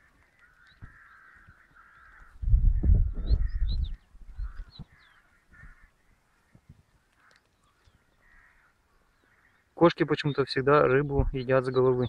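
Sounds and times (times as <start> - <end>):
birds cawing: 0.0 - 12.0
low rumble on microphone: 2.3 - 4.9.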